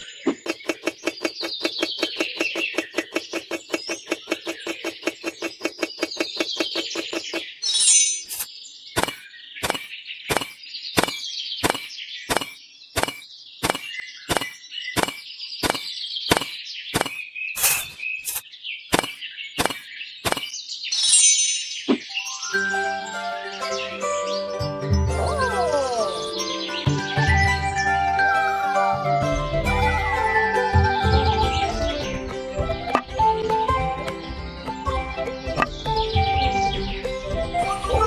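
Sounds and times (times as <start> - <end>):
birds chirping: 0.0 - 24.9, 30.9 - 38.0.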